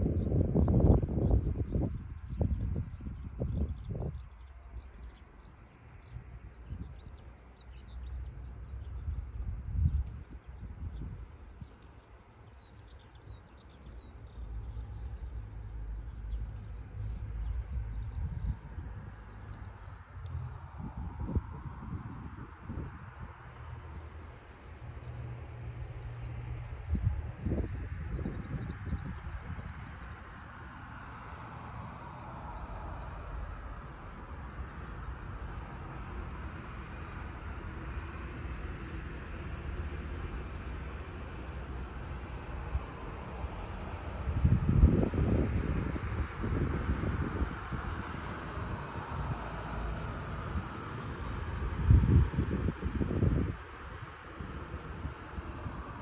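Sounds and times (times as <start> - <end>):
low uneven rumble: 0.0 - 46.5
birds chirping faintly: 0.6 - 22.6
deep low rumble: 14.2 - 24.2.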